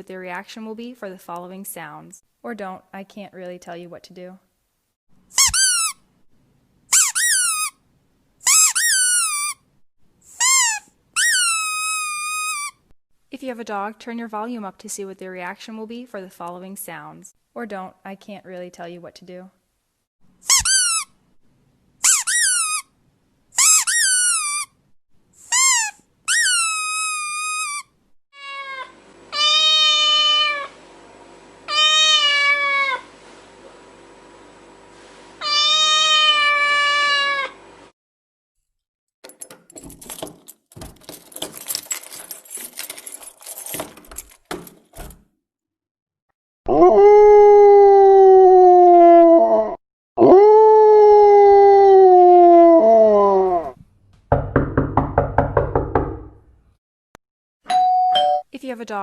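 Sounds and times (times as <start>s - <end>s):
cat meowing: 28.4s - 30.7s, 31.7s - 33.0s, 35.4s - 37.6s.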